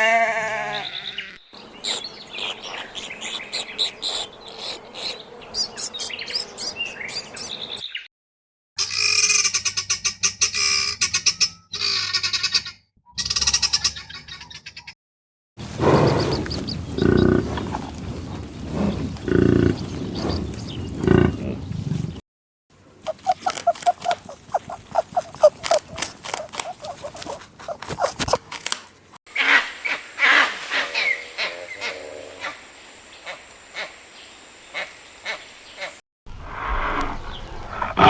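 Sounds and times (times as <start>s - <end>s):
loud low animal calls: 15.6s - 22.2s, 23.0s - 28.4s
high-pitched animal calls: 23.0s - 28.4s.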